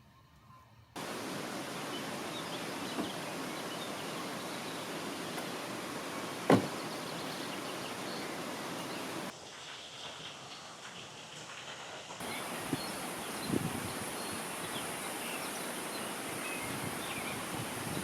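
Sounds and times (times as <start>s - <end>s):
outdoor ambient rush: 1.0s - 18.0s
sharp knock: 6.5s - 6.8s.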